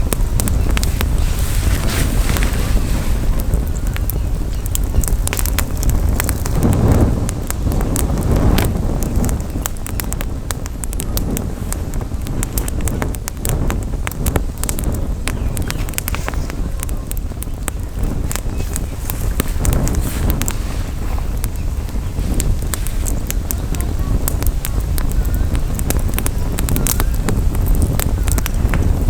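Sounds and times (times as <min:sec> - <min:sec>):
campfire crackling and popping: 0:00.0 - 0:29.0
wind rumble on microphone: 0:00.0 - 0:29.0.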